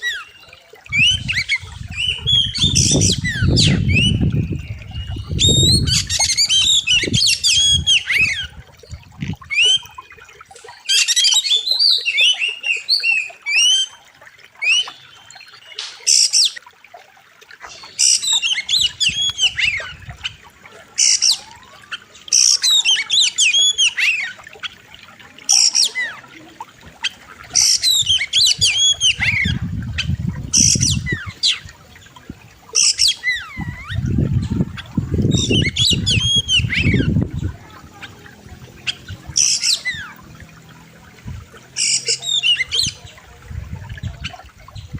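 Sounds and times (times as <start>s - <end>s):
bird singing: 0.0s - 14.0s, 32.7s - 40.4s, 41.8s - 43.2s.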